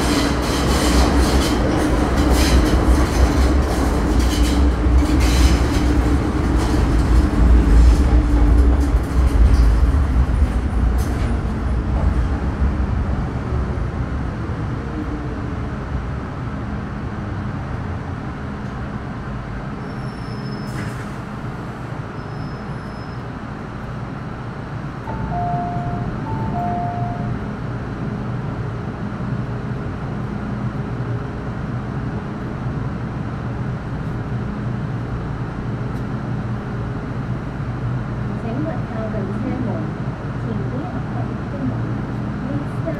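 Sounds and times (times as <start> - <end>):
train braking rumble and whine: 0.0 - 42.9
train equipment hum: 0.0 - 42.9
short electronic beeps: 25.1 - 27.3.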